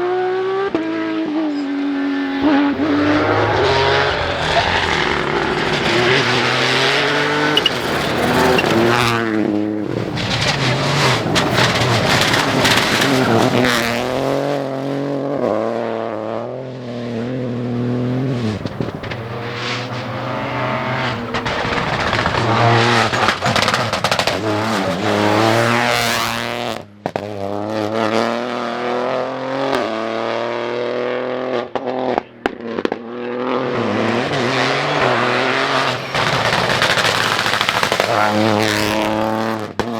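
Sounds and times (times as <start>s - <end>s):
rally car engines revving: 0.0s - 39.9s
sharp cracks: 1.9s - 14.7s, 18.2s - 25.7s, 35.1s - 39.9s.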